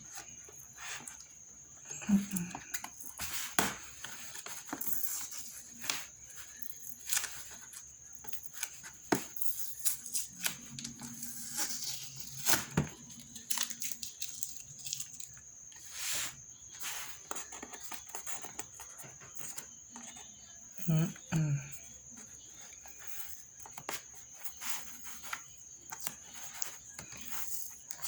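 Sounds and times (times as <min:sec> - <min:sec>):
packing tape tearing: 0:10.1 - 0:15.4.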